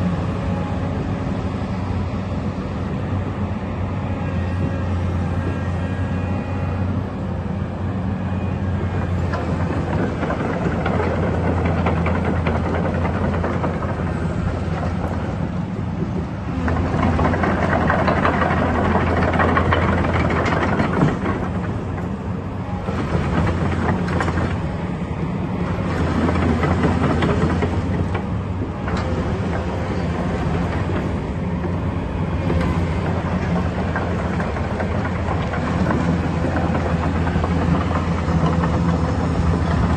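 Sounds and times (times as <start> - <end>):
diesel engine running: 0.0 - 39.9
excavator working clatter: 0.0 - 39.9.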